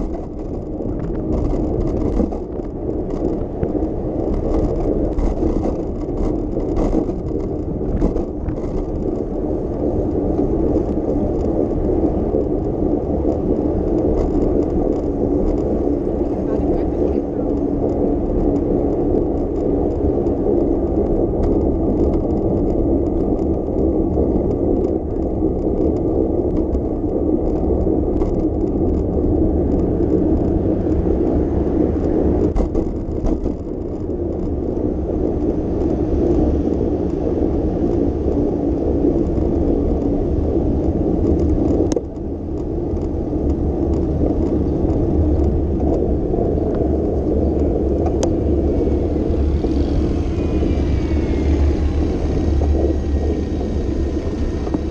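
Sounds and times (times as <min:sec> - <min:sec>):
bicycle tyre and road noise: 0:00.0 - 0:54.9
air rushing past: 0:46.8 - 0:54.9.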